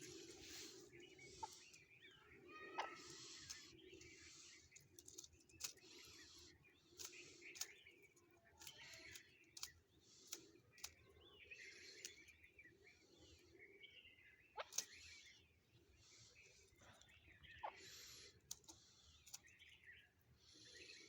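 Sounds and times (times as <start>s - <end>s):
partridge calling: 0.0s - 7.7s, 16.0s - 21.0s.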